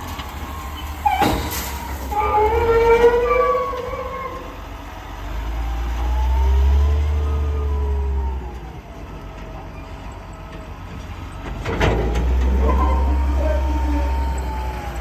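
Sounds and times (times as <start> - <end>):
diesel engine deep rumble: 0.0 - 15.0.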